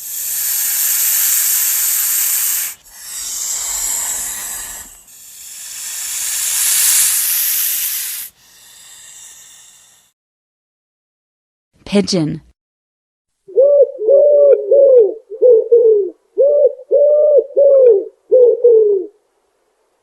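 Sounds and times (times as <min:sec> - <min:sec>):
snake hissing: 0:00.0 - 0:10.2.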